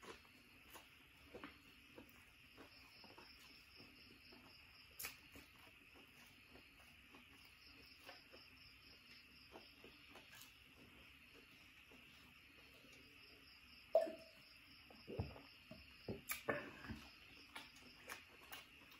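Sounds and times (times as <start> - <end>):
chewing and wet mouth clicks: 4.9 - 6.3, 16.3 - 16.5, 17.4 - 18.9.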